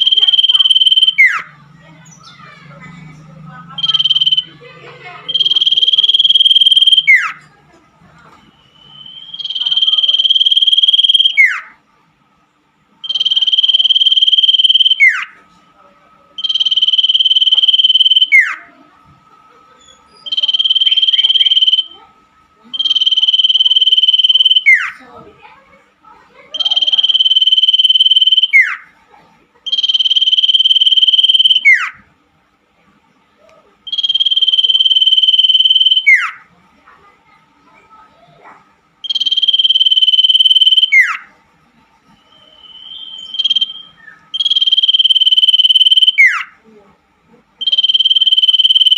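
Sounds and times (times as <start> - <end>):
bird singing a high trill: 0.0 - 4.6, 5.3 - 7.4, 8.6 - 11.8, 13.0 - 15.4, 16.4 - 18.6, 19.9 - 22.0, 22.8 - 25.0, 26.6 - 28.9, 29.7 - 32.0, 33.9 - 36.4, 39.0 - 41.3, 42.1 - 46.6, 47.6 - 48.9.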